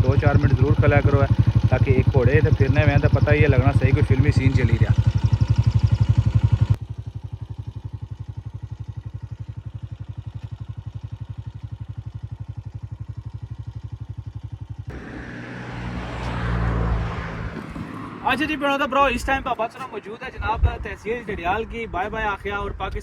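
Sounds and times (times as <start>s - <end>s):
engine idling: 0.0s - 19.7s
rushing noise: 14.9s - 20.5s.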